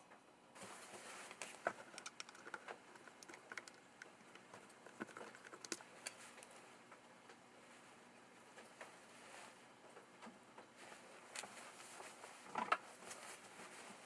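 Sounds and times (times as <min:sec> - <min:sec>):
light clicks and taps: 0:01.3 - 0:07.4.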